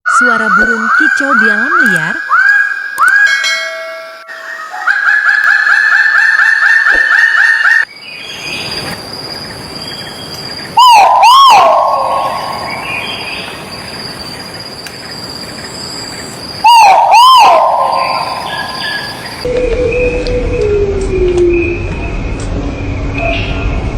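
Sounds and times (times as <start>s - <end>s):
bird whistling repeated notes: 0.1s - 3.5s, 4.3s - 8.6s, 9.7s - 20.2s
steady high-pitched tone: 9.6s - 23.9s.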